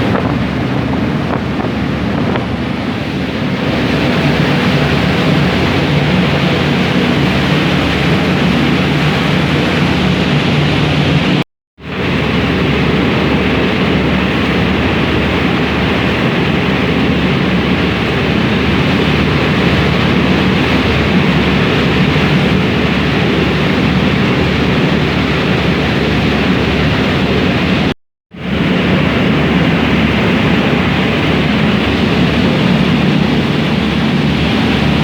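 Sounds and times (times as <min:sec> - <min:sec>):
ferry engines humming: 0:00.0 - 0:11.4
rushing water: 0:00.0 - 0:35.0
wind noise: 0:00.0 - 0:35.0.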